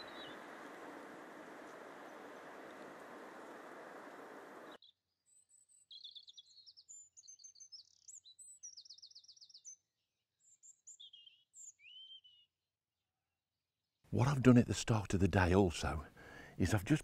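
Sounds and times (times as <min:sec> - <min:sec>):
steady rushing hiss: 0:00.0 - 0:04.8
songbird chirps and trills: 0:00.0 - 0:12.6.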